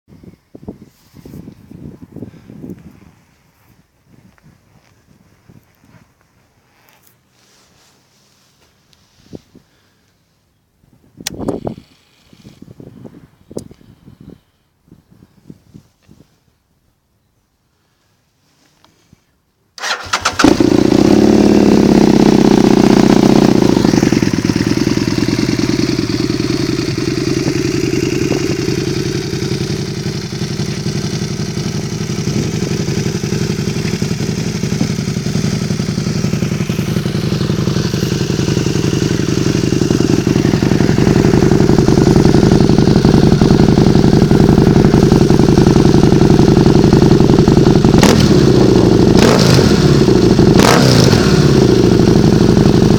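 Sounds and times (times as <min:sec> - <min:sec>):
motorcycle starter cranking: 0:19.8 - 0:25.2
motorcycle engine idling: 0:19.8 - 0:52.9.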